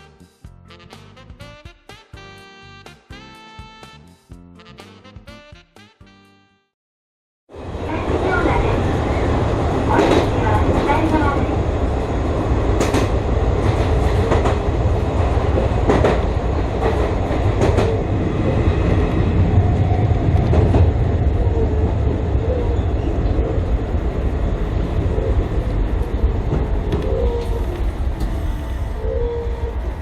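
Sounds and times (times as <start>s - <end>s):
train wheels rumbling on rails: 7.6s - 30.0s.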